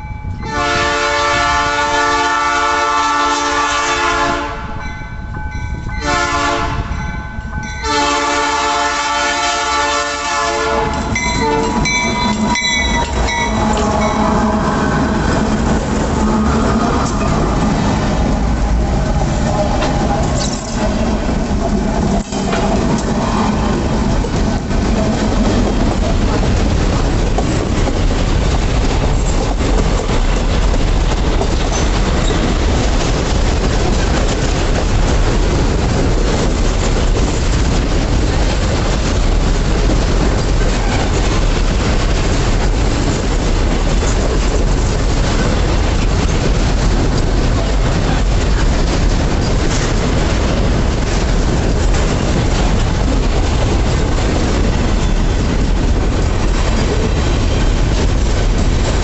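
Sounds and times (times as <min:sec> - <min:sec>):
freight train wagons rolling past: 0:00.0 - 0:59.0.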